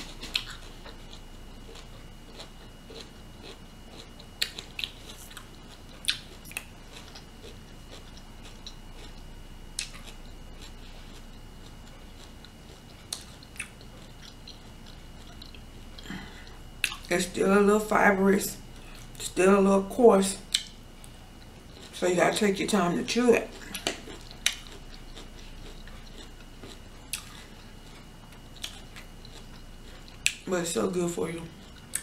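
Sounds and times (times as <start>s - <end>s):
crunchy bites: 0.0s - 17.1s
chewing broccoli: 0.0s - 32.0s.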